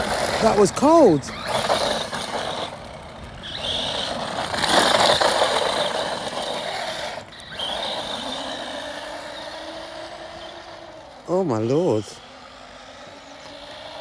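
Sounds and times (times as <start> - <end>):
electric toy car motor whine: 0.0 - 14.0.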